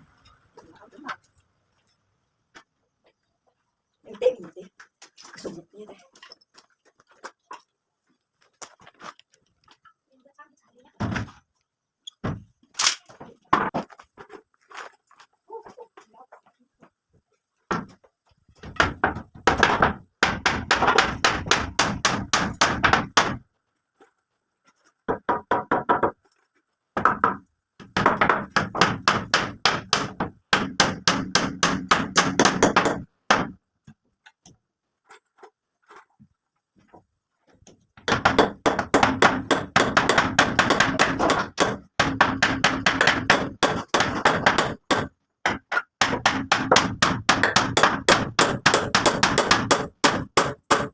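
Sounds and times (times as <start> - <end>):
hand tool knocking on wood: 38.0 - 50.9.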